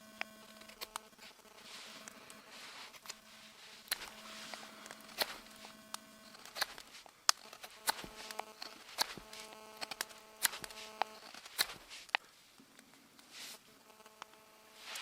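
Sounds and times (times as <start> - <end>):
wood fire crackling and popping: 3.8 - 12.2.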